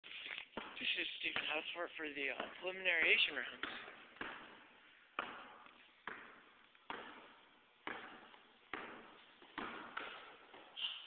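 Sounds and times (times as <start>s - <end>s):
basketball bouncing with echo: 0.4s - 11.0s.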